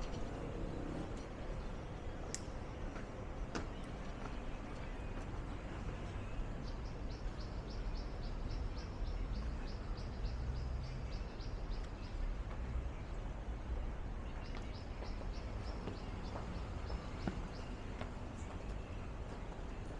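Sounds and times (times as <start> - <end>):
low city hum: 0.0 - 19.9.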